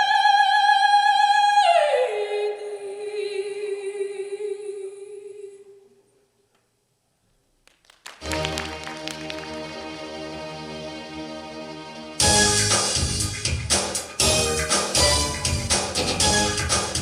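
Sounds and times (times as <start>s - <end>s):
woman singing operatically: 0.0s - 5.8s.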